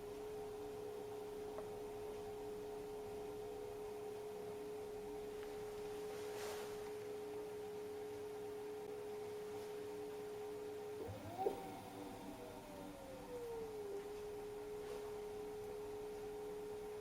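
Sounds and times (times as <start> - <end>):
washing machine motor whine: 0.0 - 17.0.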